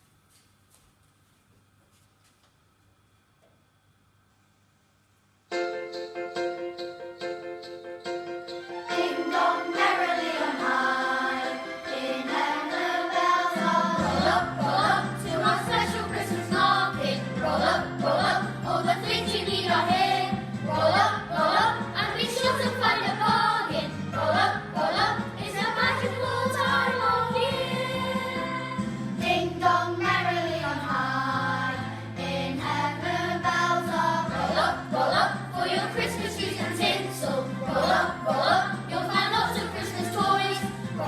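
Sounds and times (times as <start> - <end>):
instrumental accompaniment: 5.5 - 41.0
children's choir singing: 8.9 - 41.0.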